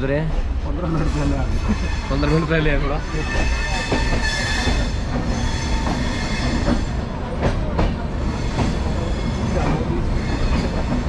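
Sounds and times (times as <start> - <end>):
train wheels rumbling on rails: 0.0 - 11.0
high metallic squeal: 1.0 - 6.9.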